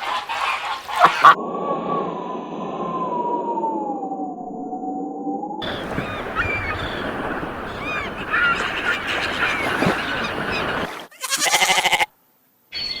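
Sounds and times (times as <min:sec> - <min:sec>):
farm animals calling: 0:00.0 - 0:01.4, 0:05.6 - 0:12.1
loud wavering animal call: 0:05.6 - 0:12.0.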